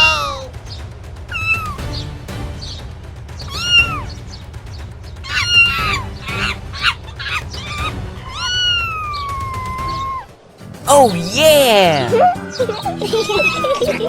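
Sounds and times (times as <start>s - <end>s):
high pitched animal cries: 0.0s - 0.5s, 1.3s - 1.8s, 3.4s - 4.1s, 5.2s - 10.3s, 12.0s - 14.0s
background music: 0.0s - 14.0s.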